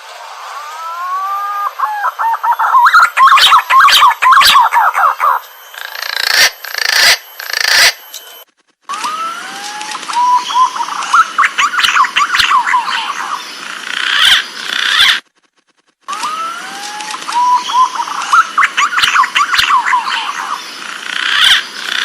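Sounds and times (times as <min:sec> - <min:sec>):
pigeon warbling whistles: 0:00.8 - 0:07.9, 0:10.2 - 0:13.1.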